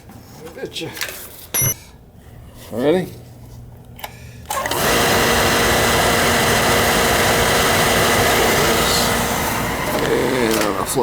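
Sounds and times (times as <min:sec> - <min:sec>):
oil burner motor running: 0:04.5 - 0:11.0.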